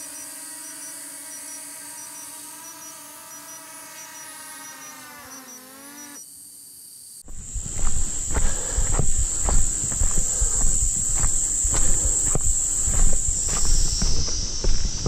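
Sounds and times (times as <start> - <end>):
footsteps on dirt trail: 7.2 - 15.0
drone propeller whine: 7.3 - 15.0.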